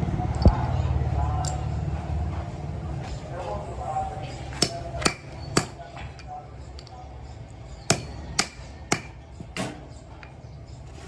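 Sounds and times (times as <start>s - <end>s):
low workshop hum: 0.0s - 11.0s
hammer striking metal: 4.6s - 5.8s, 7.9s - 9.8s.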